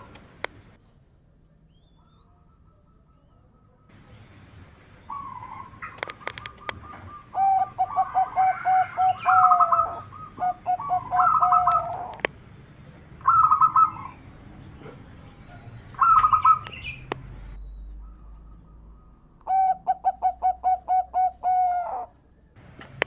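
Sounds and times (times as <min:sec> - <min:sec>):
doves cooing: 0:00.0 - 0:00.8, 0:02.0 - 0:23.0
sharp clicks: 0:05.8 - 0:07.0, 0:11.7 - 0:12.4, 0:16.6 - 0:18.5.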